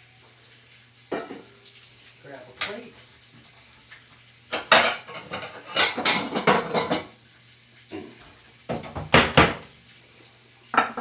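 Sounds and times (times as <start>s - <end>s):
dishes and utensils clattering: 1.1s - 1.6s, 4.5s - 7.2s, 7.9s - 9.7s, 10.7s - 11.0s.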